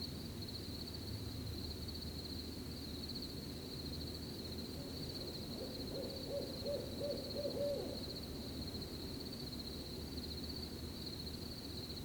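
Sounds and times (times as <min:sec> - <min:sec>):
owl hooting: 0:05.6 - 0:08.0.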